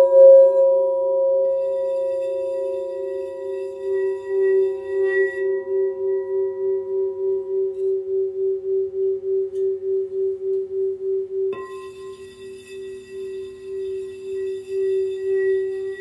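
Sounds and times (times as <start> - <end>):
higher singing bowl tone: 0.0 - 16.0
singing bowl low tone: 0.0 - 16.0.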